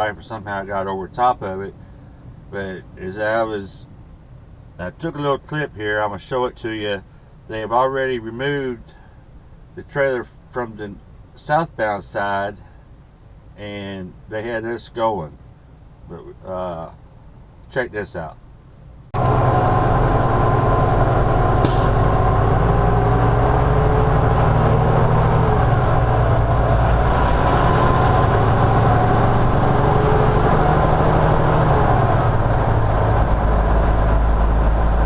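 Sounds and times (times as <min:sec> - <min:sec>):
road noise: 0:00.0 - 0:35.0
truck diesel engine: 0:18.2 - 0:35.0
short air hiss: 0:21.6 - 0:22.1.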